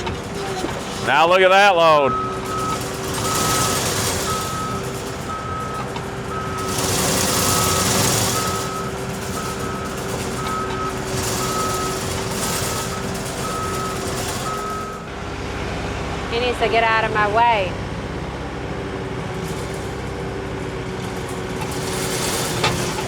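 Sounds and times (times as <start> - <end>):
diesel engine running: 0.0 - 23.0
backup alarm beeping: 0.4 - 15.1.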